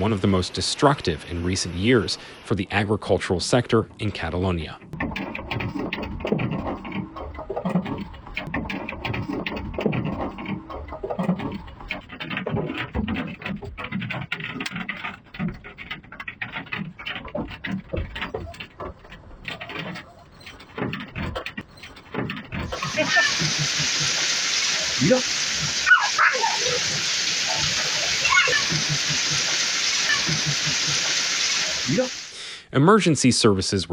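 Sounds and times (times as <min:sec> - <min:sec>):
hailstones pelting hard surfaces: 0:22.7 - 0:32.4.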